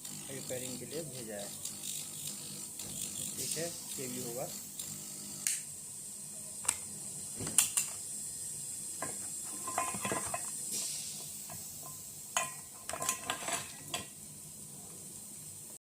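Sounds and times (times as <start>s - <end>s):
steady hiss: 0.0s - 4.8s, 5.4s - 15.8s
small tools clicking and clinking: 11.8s - 14.1s.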